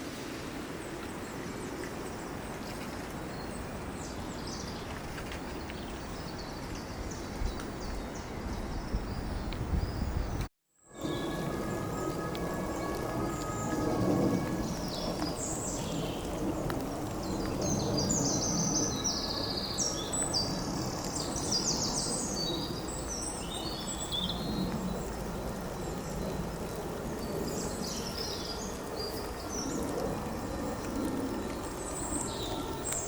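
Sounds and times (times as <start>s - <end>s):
songbird singing: 0.7s - 10.4s, 11.0s - 33.0s
low outdoor rumble: 11.0s - 33.0s.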